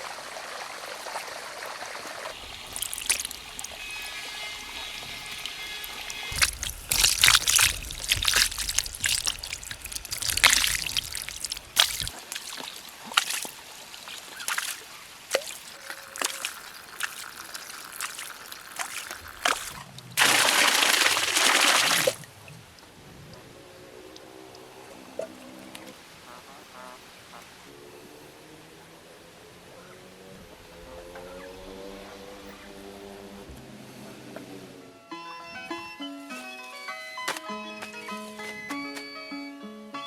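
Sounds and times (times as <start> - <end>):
water pouring in a stream: 0.0 - 22.7
water sloshing and trickling: 0.0 - 26.9.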